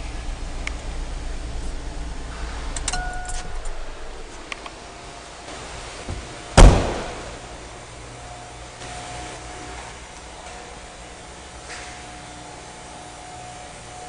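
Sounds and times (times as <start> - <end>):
vehicle door slamming: 6.0 - 7.6.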